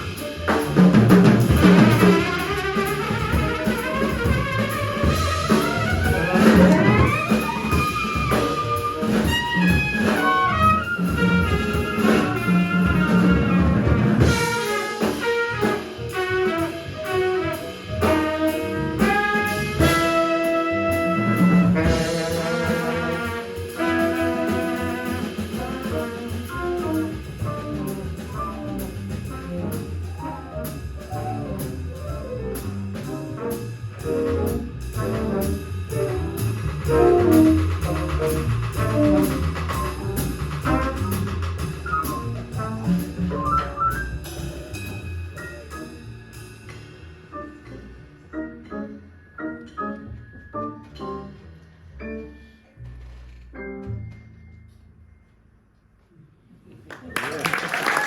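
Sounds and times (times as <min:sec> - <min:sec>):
trumpet: 0:00.0 - 0:31.7, 0:33.0 - 0:45.8
drums: 0:00.0 - 0:51.4, 0:57.1 - 0:58.0.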